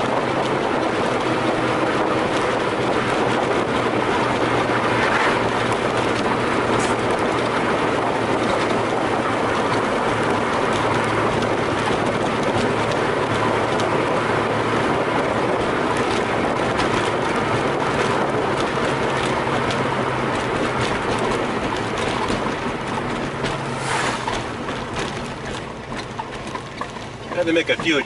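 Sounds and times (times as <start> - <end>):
car engine hum: 0.0 - 28.0
road and wind noise: 0.0 - 28.0.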